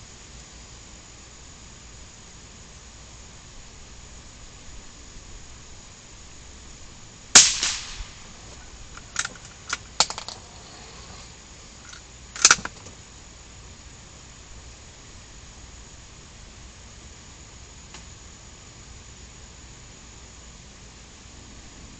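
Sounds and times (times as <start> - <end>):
gunshots: 7.4 - 8.2.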